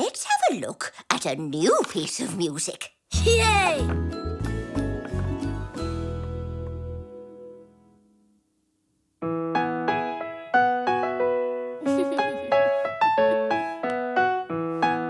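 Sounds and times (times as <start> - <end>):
gentle piano melody: 3.2 - 8.0, 9.2 - 15.0.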